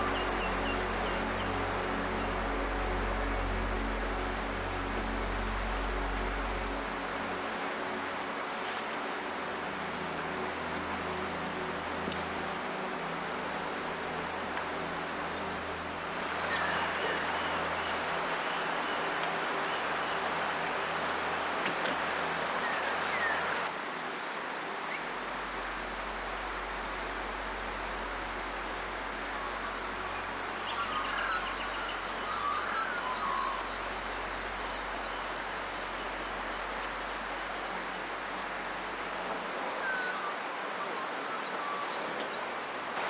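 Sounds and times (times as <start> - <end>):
river rushing: 0.0 - 43.0
small birds chirping: 16.2 - 23.7.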